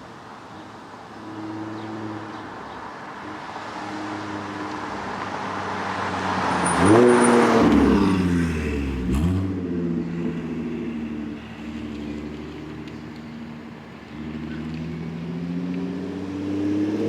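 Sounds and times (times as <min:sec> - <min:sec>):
car engine revving: 0:03.5 - 0:17.0.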